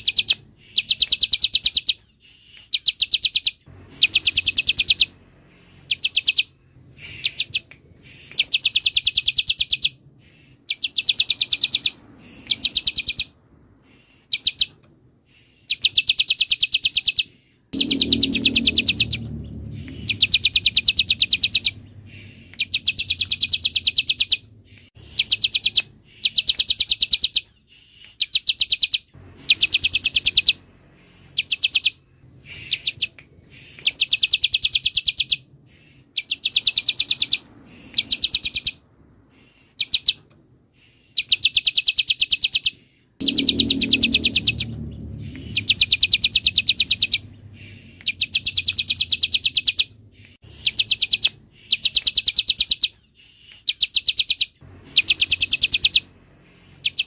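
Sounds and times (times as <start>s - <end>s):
low rumble: 3.6s - 8.1s, 17.8s - 26.0s, 29.1s - 33.6s, 43.2s - 50.7s, 54.6s - 57.0s
bird buzzing chattering trills: 17.7s - 19.4s, 43.2s - 47.2s.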